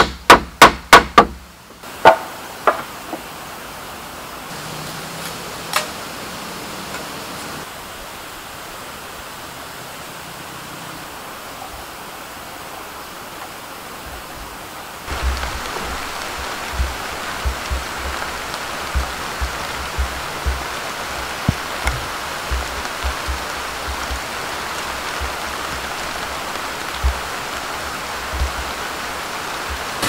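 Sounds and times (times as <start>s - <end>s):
sharp knocks: 0.0s - 1.4s, 15.1s - 25.9s
rain falling in forest: 0.0s - 30.0s
dull thumps: 15.1s - 28.9s.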